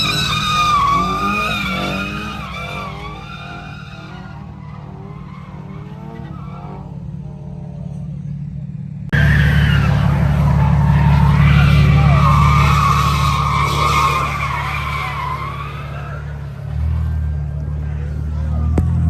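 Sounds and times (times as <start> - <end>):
car tyres squealing: 0.0 - 8.5, 9.1 - 19.0
car engine running: 0.0 - 19.0.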